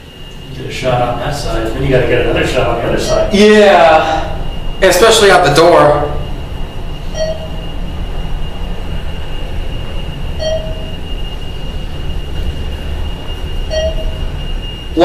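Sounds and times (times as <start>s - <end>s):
elevator low rumble and whine: 0.0s - 15.0s
short electronic chime: 7.1s - 7.6s, 10.4s - 11.0s, 13.7s - 14.3s.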